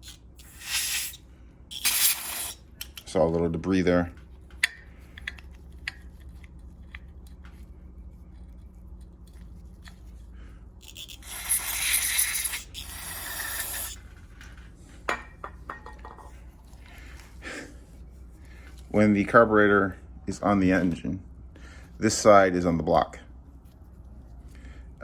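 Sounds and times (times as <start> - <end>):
aerosol can spraying: 0.0 - 2.6, 10.8 - 14.0
parts clicking and tapping: 4.1 - 7.6.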